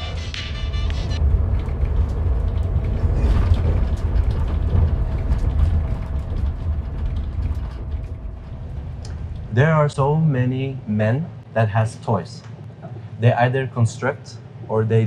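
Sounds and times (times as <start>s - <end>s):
train rumble inside carriage: 0.0s - 11.5s
clicks and rattles: 1.4s - 9.5s.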